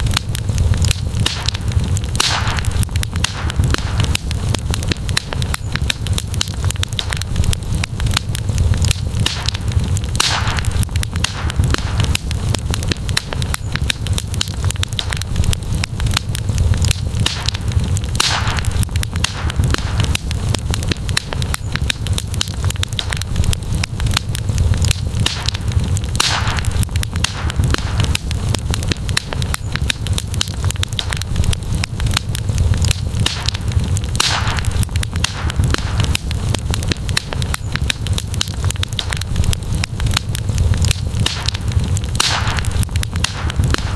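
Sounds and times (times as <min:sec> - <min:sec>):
campfire crackling and popping: 0:00.0 - 0:43.9
fire hissing: 0:00.0 - 0:43.9.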